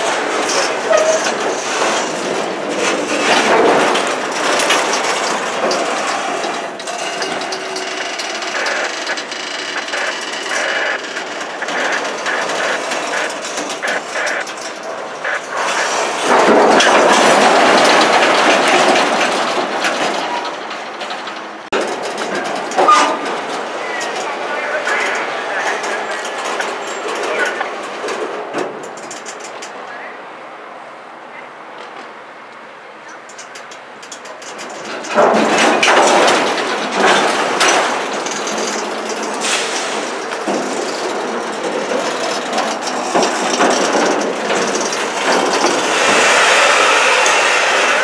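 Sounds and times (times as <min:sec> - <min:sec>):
freight train cars rolling: 0:00.0 - 0:48.0
wheels and couplers clanking: 0:00.0 - 0:48.0.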